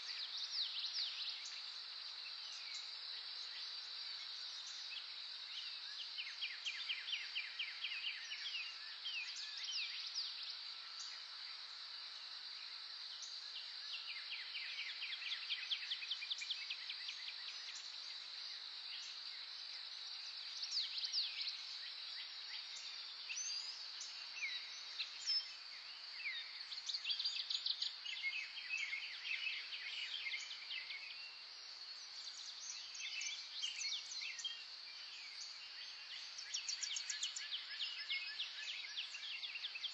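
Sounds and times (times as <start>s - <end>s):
birds singing: 13.1s - 39.9s.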